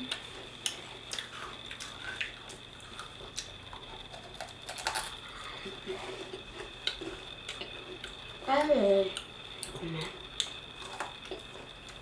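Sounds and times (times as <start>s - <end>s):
person chewing crunchy cookies: 0.0s - 12.0s.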